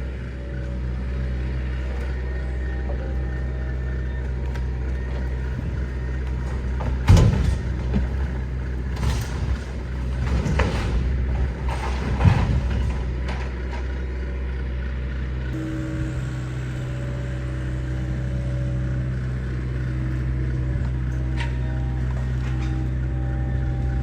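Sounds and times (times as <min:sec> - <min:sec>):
excavator diesel engine running: 0:00.0 - 0:24.0
crashes of falling debris: 0:05.3 - 0:14.1.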